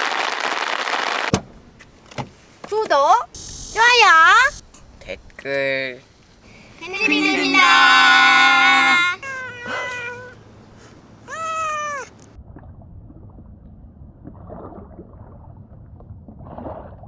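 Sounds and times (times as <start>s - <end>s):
high meow-like calls: 6.8s - 10.4s, 11.2s - 12.2s.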